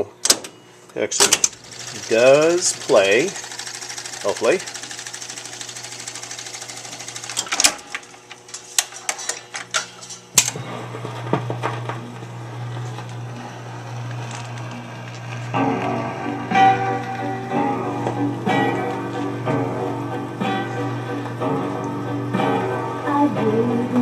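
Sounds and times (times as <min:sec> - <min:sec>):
jukebox mechanism chatter: 0:00.0 - 0:15.8
steady low hum: 0:00.0 - 0:23.2
mechanical clicks and clunks: 0:00.2 - 0:15.9.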